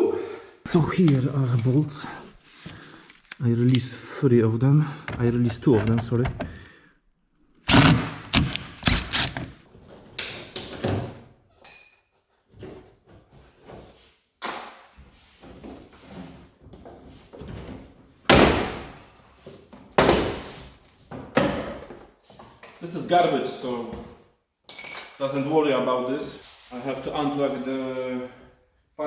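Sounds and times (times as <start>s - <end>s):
loud thumps: 7.6s - 9.6s
metallic ring: 11.6s - 12.2s.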